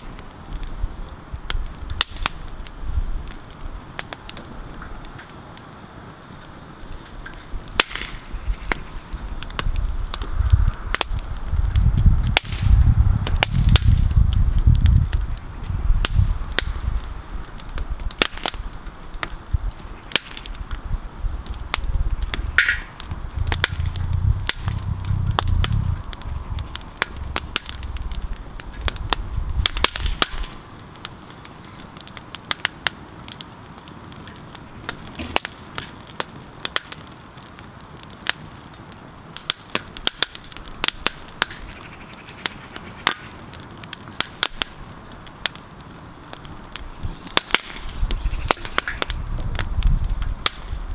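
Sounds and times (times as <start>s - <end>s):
campfire crackling and popping: 0.0s - 50.9s
low rumble: 9.7s - 17.0s, 20.9s - 29.7s.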